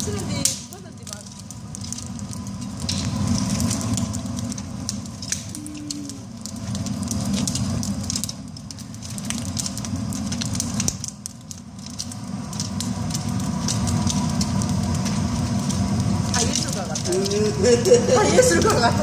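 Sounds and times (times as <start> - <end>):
low rumble: 0.0 - 19.0
wood fire crackling and popping: 0.0 - 19.0.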